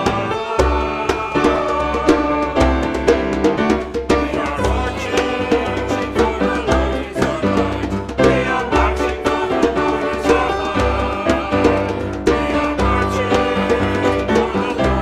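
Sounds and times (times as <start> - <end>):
upbeat hymn music with singing: 0.0 - 15.0.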